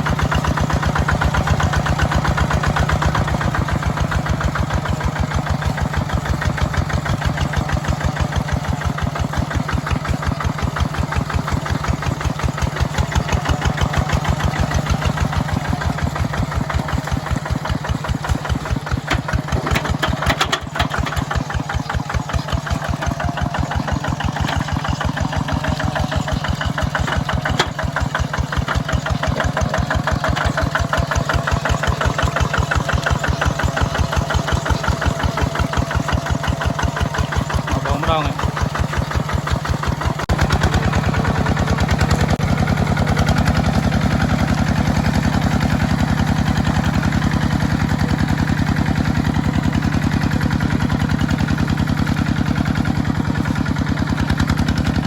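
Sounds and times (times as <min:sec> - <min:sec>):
small tractor engine running: 0:00.0 - 0:55.0.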